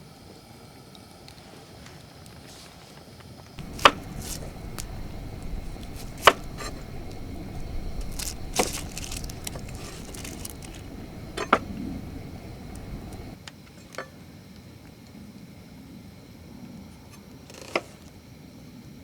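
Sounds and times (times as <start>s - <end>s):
low background rumble: 3.6s - 13.4s
utensils and dishes clinking: 3.6s - 13.4s.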